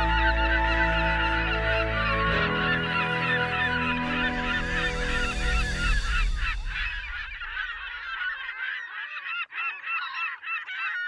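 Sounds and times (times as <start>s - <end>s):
low background music: 0.0s - 7.9s
flock of birds honking: 0.0s - 11.0s.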